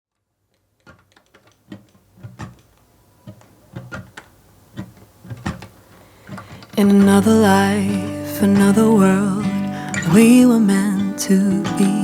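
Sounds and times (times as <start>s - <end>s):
light knocks and clicks: 0.6s - 7.2s.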